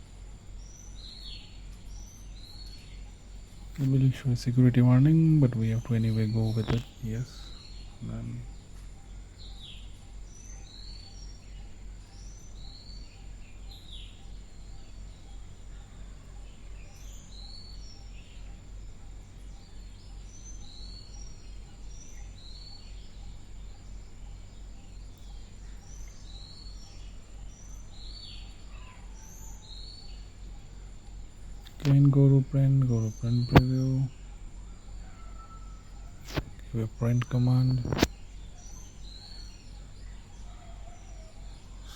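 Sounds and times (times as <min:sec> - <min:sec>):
birds chirping: 0:00.0 - 0:41.9
faint high whine: 0:00.0 - 0:41.9
low electrical hum: 0:00.0 - 0:41.9.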